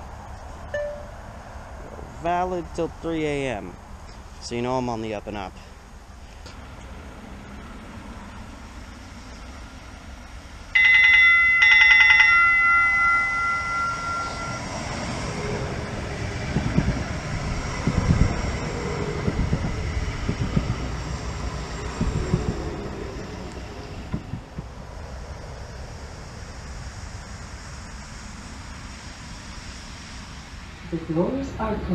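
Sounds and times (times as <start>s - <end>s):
train rumbling: 0.0s - 31.9s
train warning bell ringing: 0.7s - 1.3s, 10.7s - 16.1s
train clunks: 10.1s - 18.0s, 21.5s - 24.8s.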